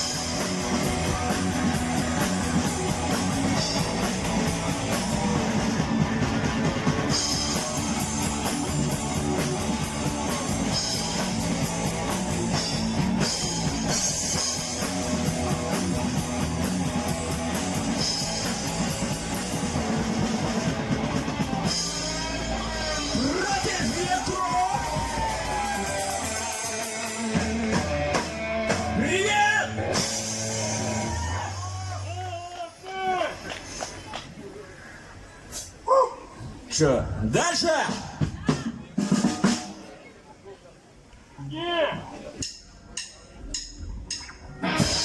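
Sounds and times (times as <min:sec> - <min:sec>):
electric guitar: 0:00.0 - 0:32.1, 0:44.2 - 0:45.0
drum kit: 0:00.0 - 0:32.4, 0:37.8 - 0:40.0, 0:42.0 - 0:45.0.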